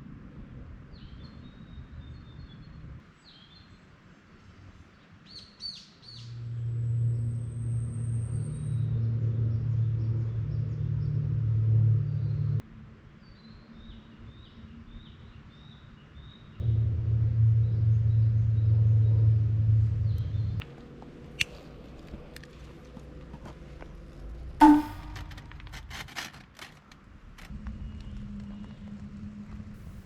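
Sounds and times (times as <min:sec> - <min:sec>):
low steady rumble: 0:06.3 - 0:12.6, 0:16.6 - 0:26.0.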